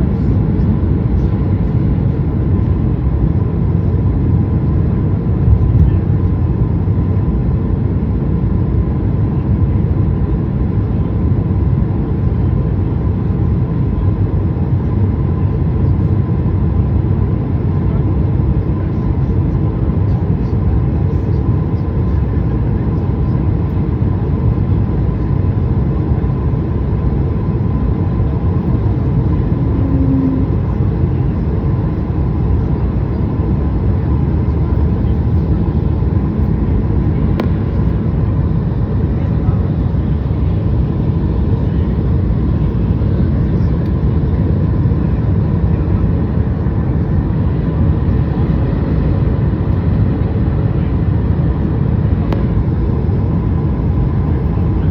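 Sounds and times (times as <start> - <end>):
airliner engine and air rush: 0.0 - 54.9
faint steady hum: 13.1 - 54.9.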